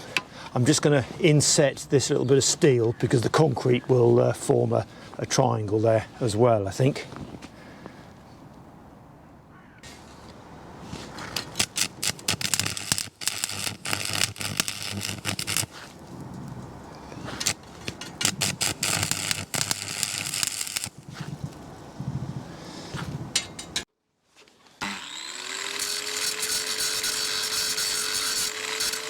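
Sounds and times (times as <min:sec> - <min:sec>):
arc welding crackle: 0:11.2 - 0:22.0, 0:25.8 - 0:29.0.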